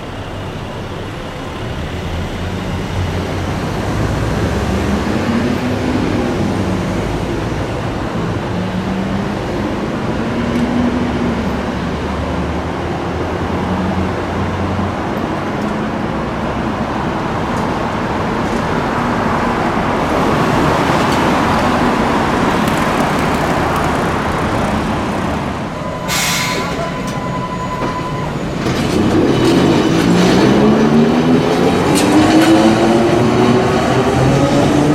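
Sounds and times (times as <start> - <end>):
streetcar wheel rumble: 0.0 - 34.9
steady high tone: 24.1 - 28.7.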